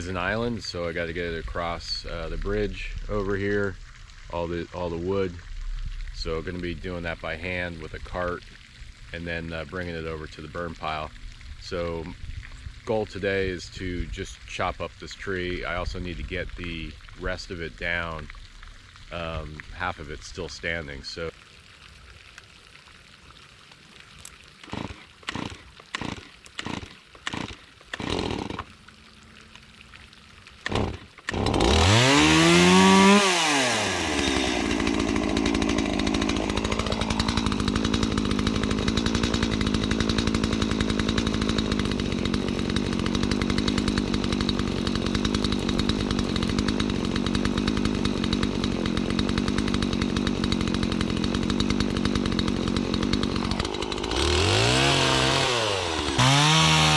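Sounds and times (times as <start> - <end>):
chainsaw engine idling: 0.0 - 5.4, 24.6 - 28.7, 30.6 - 56.9
chainsaw starter cord pulls: 24.2 - 28.7, 30.6 - 56.9.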